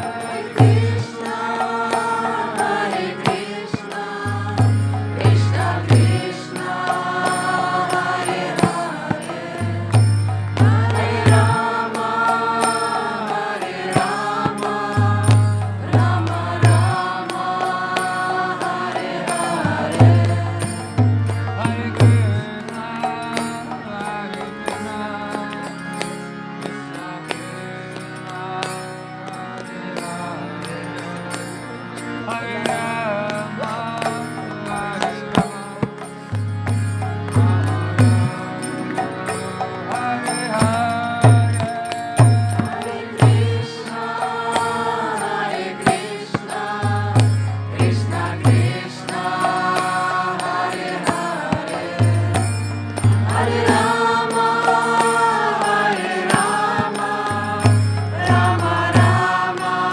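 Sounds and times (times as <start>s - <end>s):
chanting over instruments: 0.0s - 59.9s
sharp percussive strikes: 34.0s - 59.9s.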